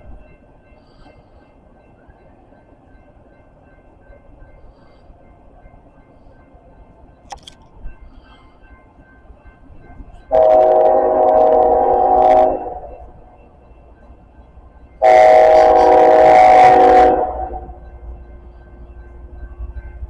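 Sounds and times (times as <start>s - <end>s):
locomotive air horn blasts: 10.3s - 13.0s, 15.0s - 17.8s.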